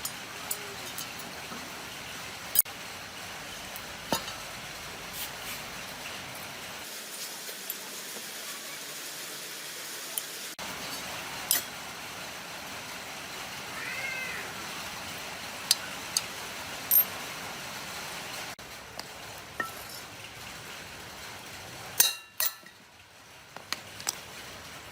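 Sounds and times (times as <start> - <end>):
metal parts clinking: 0.0 - 1.6, 16.9 - 17.2, 19.6 - 20.1
steady hiss: 0.0 - 24.9
cat meowing: 13.8 - 14.6.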